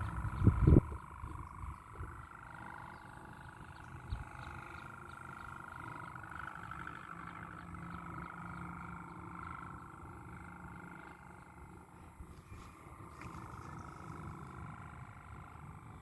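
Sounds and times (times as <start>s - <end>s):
wind rumble on microphone: 0.0s - 4.8s
kite hummer droning: 0.0s - 16.0s.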